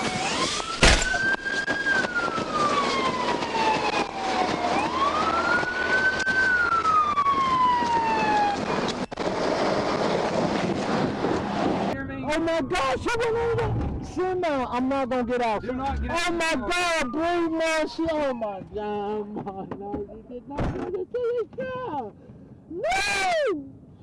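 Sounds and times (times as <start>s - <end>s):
police siren wailing: 0.0s - 9.3s, 12.4s - 19.1s
road noise: 0.0s - 22.7s.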